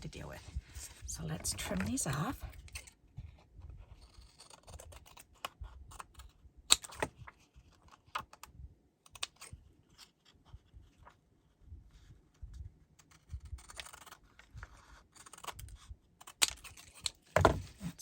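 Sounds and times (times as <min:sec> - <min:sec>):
scissors snipping paper: 0:13.0 - 0:17.2.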